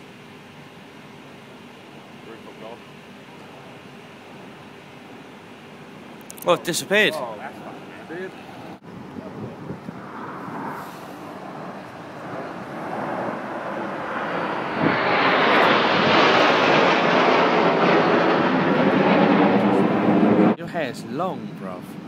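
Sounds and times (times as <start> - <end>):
jet engines flying past: 0.0 - 22.0.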